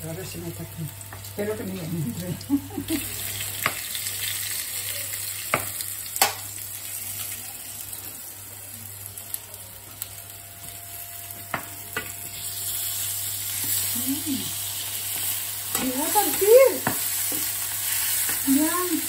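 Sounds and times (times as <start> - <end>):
fish sizzling in oil: 0.0 - 19.0
utensils knocking on a pan: 15.7 - 17.5.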